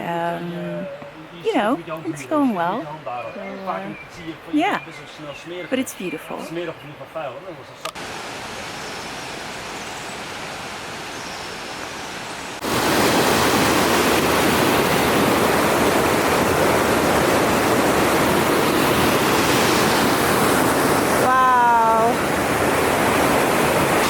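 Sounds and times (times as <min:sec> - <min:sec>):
rushing mountain water: 0:07.9 - 0:24.0.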